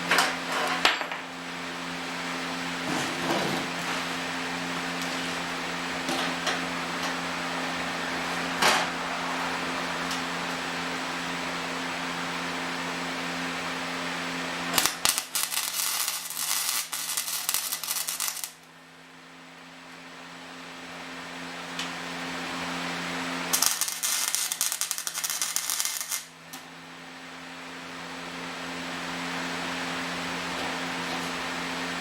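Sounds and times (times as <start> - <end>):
welder humming: 0.0 - 32.0
welding arc crackling: 2.8 - 8.9, 14.4 - 18.7, 23.0 - 26.6.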